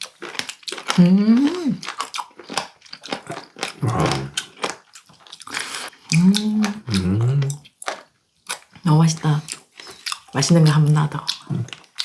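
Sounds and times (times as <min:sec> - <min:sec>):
crunchy chewing: 0:00.0 - 0:08.8, 0:09.4 - 0:12.0
person humming mmm: 0:01.0 - 0:01.8, 0:03.8 - 0:04.4, 0:06.1 - 0:07.6.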